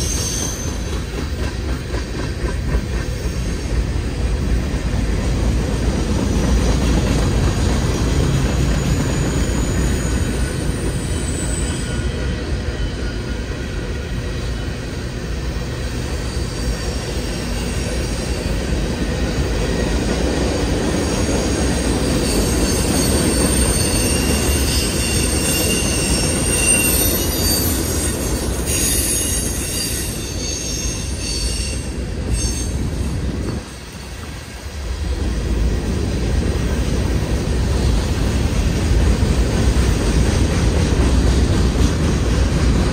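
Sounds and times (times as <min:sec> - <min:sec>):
high wheel squeal: 0:00.0 - 0:01.2, 0:07.7 - 0:15.0, 0:15.8 - 0:20.0, 0:20.8 - 0:34.3
freight train wheels rumbling: 0:00.0 - 0:42.9.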